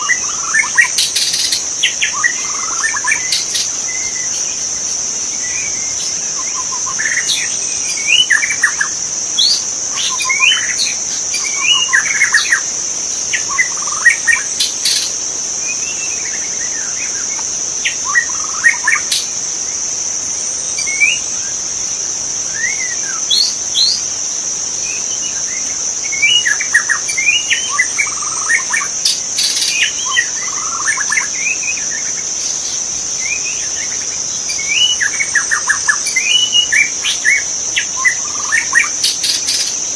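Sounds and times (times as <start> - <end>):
high-pitched insect buzz: 0.0 - 39.9
bird singing whistled phrases: 9.4 - 12.6, 34.6 - 39.6.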